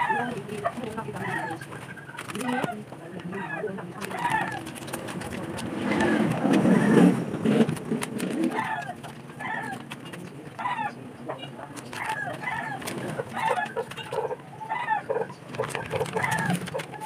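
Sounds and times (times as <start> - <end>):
chickens clucking: 0.0 - 17.0
clicks of vinyl sheets: 4.0 - 10.4, 15.5 - 17.0.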